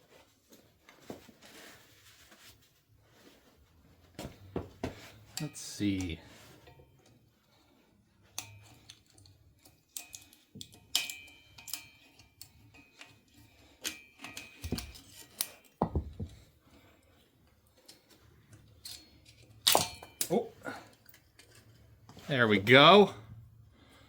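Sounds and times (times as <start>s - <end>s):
metal clinks and taps: 8.2s - 16.5s, 17.8s - 22.3s.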